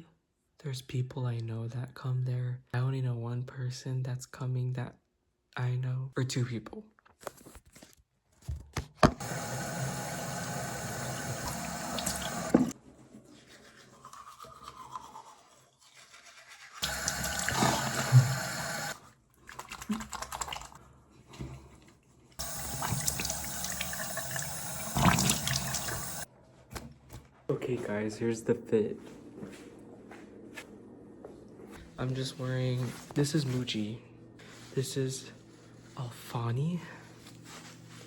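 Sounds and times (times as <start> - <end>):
electric toothbrush buzzing: 9.2 - 12.7, 16.8 - 19.0, 22.4 - 26.3
teeth brushing and rinsing: 9.3 - 20.8, 22.4 - 26.3.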